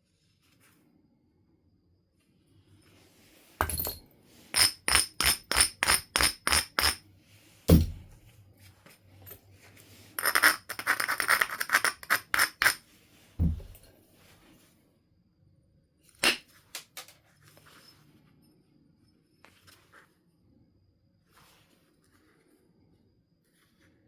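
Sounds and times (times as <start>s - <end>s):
heavy strike on stone: 7.7s - 8.2s, 13.4s - 13.9s.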